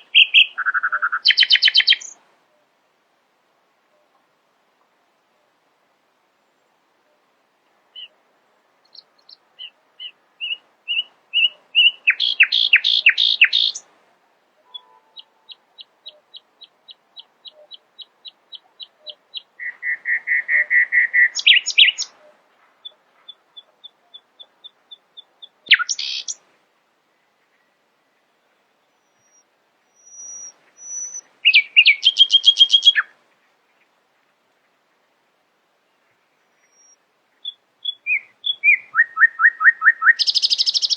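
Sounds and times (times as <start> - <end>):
nightingale singing: 0.0 - 2.7, 7.9 - 8.2, 8.8 - 13.9, 14.6 - 26.5, 28.7 - 33.2, 36.4 - 40.9.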